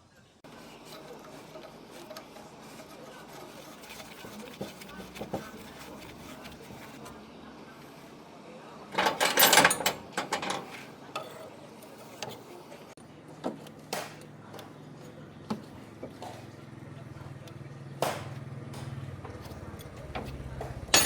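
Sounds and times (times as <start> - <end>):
metal tools clattering and knocking: 8.9 - 11.5, 19.4 - 21.0.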